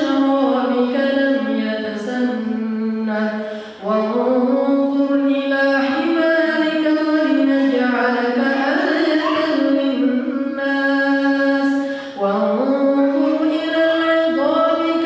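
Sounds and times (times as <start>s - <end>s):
man chanting melodically: 8.1s - 10.5s.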